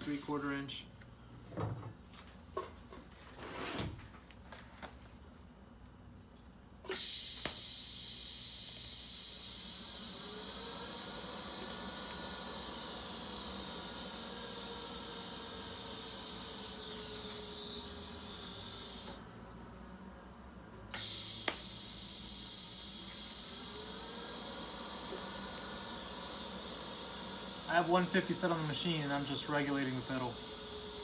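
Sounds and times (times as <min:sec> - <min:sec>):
welding arc hissing and buzzing: 0:06.9 - 0:19.2, 0:20.9 - 0:31.0
welding arc sharp cracks: 0:20.9 - 0:22.4, 0:27.7 - 0:30.3.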